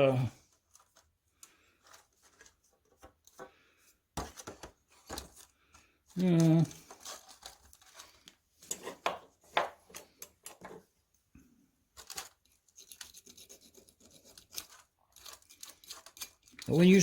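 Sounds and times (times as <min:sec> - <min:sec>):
hand scraping metal part: 0:12.0 - 0:17.0.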